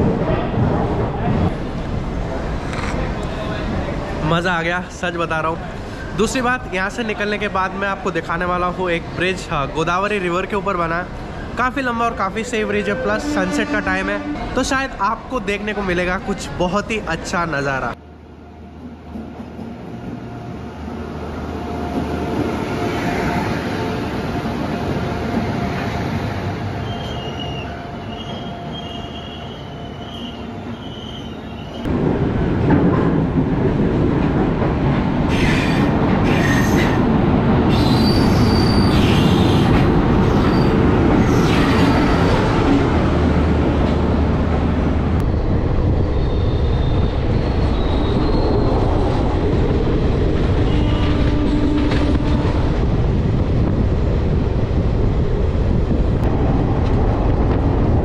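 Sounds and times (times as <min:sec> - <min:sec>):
train wheels rumbling on rail: 0:18.7 - 0:58.0
high wheel squeals: 0:37.7 - 0:39.7, 0:46.2 - 0:48.8.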